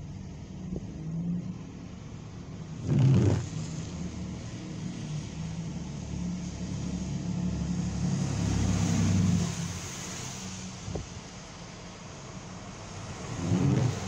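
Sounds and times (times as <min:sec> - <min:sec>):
vehicle driving past: 0:07.4 - 0:10.6.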